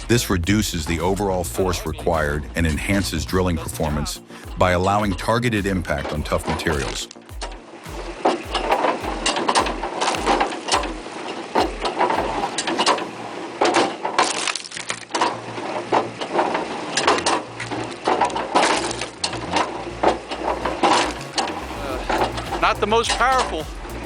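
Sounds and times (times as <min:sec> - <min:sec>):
low pulsing: 0:00.0 - 0:11.1, 0:18.7 - 0:24.0
steady hum: 0:00.0 - 0:13.6, 0:15.5 - 0:24.0
wood cracking and splintering: 0:05.9 - 0:22.2
machine engine running: 0:06.8 - 0:13.6, 0:17.8 - 0:24.0.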